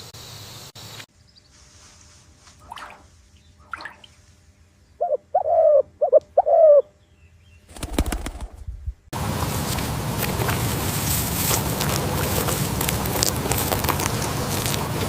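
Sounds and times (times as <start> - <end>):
faint higher bird calls: 4.8 - 7.7
dove cooing: 5.0 - 6.9.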